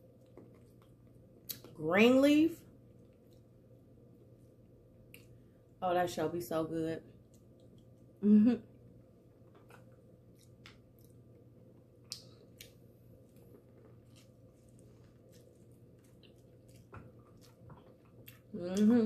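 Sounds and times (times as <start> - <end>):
chewing food: 0.0 - 1.7, 2.8 - 3.6, 9.4 - 19.0.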